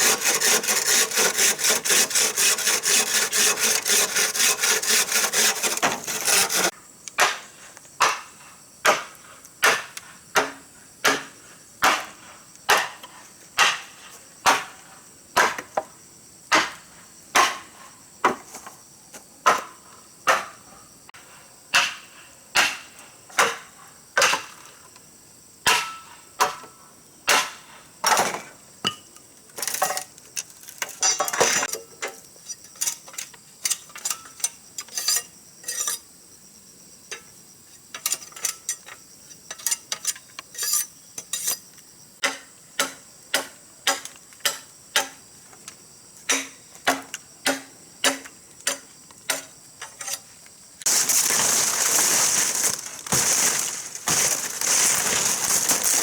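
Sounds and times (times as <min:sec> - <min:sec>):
hand saw cutting wood: 0:00.0 - 0:06.7, 0:50.9 - 0:56.0
knocks and scraping: 0:00.0 - 0:06.7, 0:50.9 - 0:56.0.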